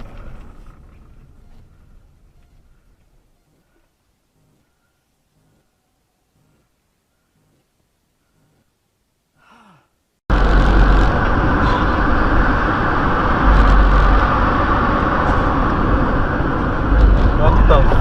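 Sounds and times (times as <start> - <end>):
car road and wind noise: 10.3 - 18.0.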